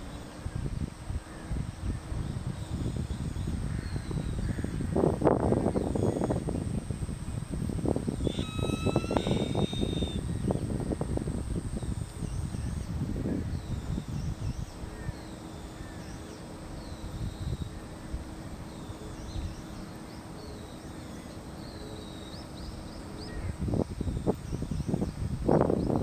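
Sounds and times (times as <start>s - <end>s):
wind rumble on microphone: 0.0s - 19.9s, 22.6s - 26.0s
faint steady hum: 0.0s - 26.0s
small birds chirping: 8.2s - 10.7s.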